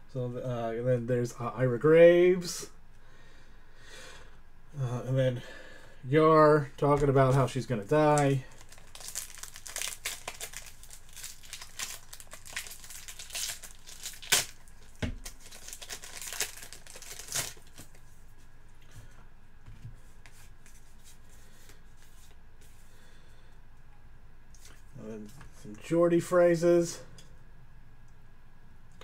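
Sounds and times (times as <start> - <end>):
wrapper crinkling and tearing: 8.0 - 18.0.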